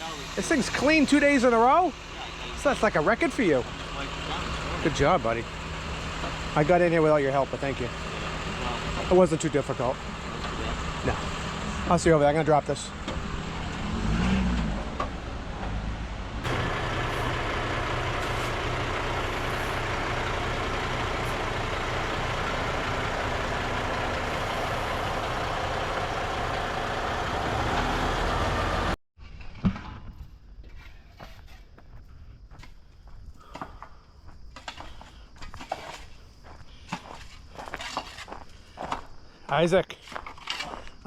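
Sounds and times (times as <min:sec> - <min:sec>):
truck diesel engine running: 0:00.0 - 0:29.0
faint outdoor ambience: 0:30.1 - 0:41.0.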